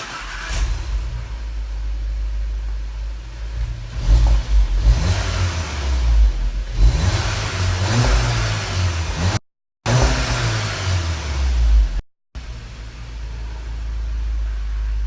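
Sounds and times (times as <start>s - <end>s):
car engine idling: 0.0s - 9.3s, 10.7s - 15.0s
engine revs from exhaust: 3.5s - 12.8s.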